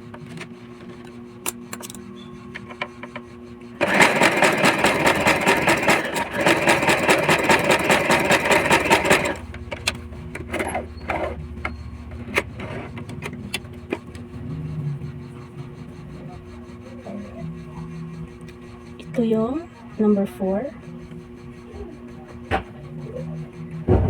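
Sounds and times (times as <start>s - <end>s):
sewing machine running: 3.8s - 11.4s.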